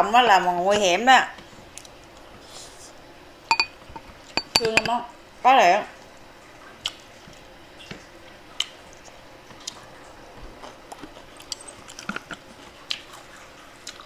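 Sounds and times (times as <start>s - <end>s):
person chewing food: 10.5s - 14.0s.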